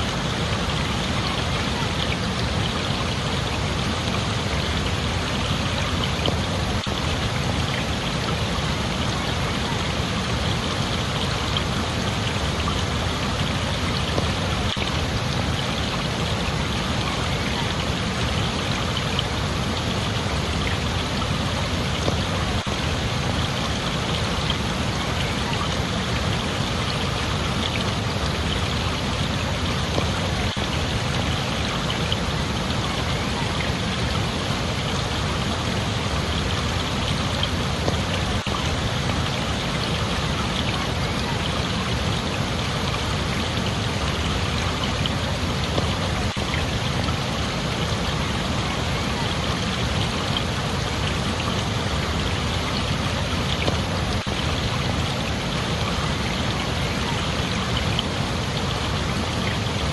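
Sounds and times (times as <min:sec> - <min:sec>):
running water: 0:00.0 - 0:59.9.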